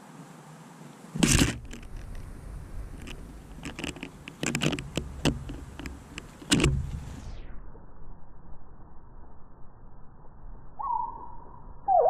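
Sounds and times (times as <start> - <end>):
beaks knocking on wood: 3.0 - 7.1.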